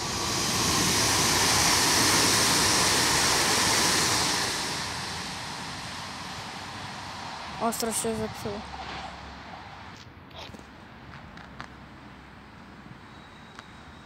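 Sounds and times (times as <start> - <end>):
electric train passing: 0.0 - 10.0, 11.8 - 14.0.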